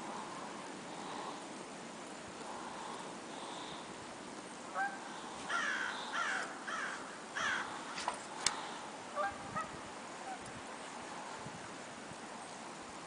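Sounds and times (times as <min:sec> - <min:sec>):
crow cawing: 0:04.8 - 0:07.8.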